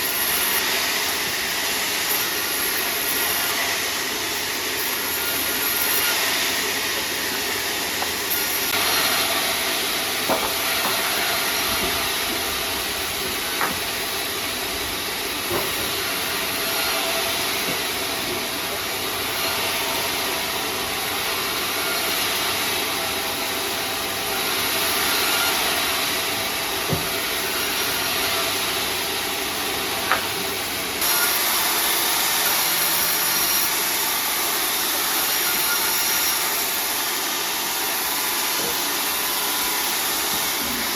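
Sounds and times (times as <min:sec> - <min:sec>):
saw cutting wood: 0:00.0 - 0:40.9
sharp knocks: 0:10.3 - 0:11.0.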